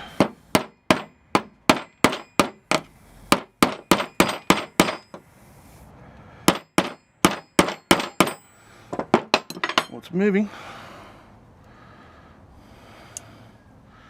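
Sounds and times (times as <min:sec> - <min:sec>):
hammer striking metal: 0:00.1 - 0:05.2, 0:06.5 - 0:10.0.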